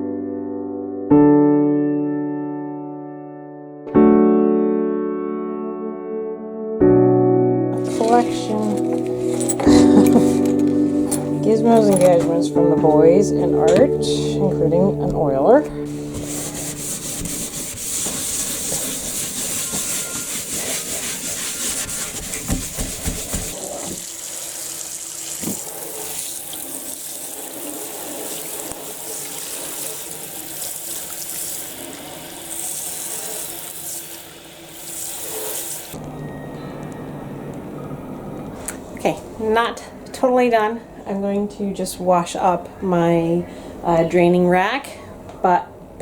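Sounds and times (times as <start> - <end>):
water running from tap into sink: 17.0 - 36.0.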